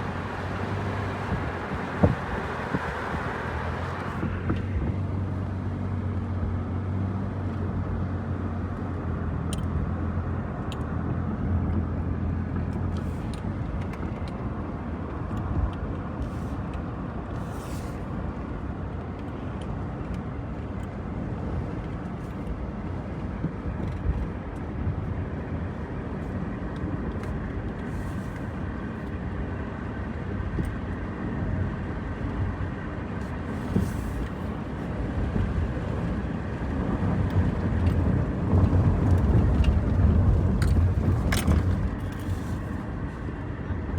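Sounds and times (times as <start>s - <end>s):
car engine hum and road noise: 0.0s - 43.9s.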